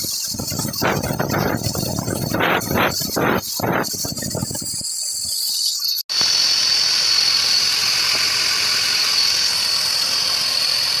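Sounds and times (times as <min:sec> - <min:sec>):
power tool motor whining: 0:06.2 - 0:11.0.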